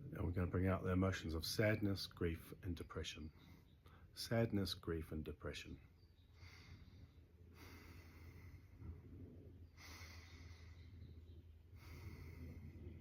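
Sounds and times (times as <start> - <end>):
slow soft breathing: 6.2 - 13.0.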